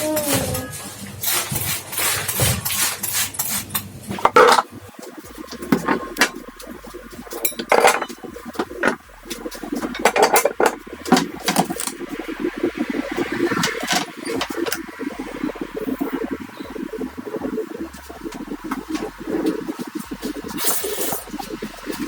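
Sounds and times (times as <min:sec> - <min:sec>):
dishes and cutlery clinking: 0:03.4 - 0:04.8, 0:07.4 - 0:09.0
kitchenware knocks and clicks: 0:04.1 - 0:04.8, 0:07.4 - 0:09.0, 0:09.8 - 0:12.0.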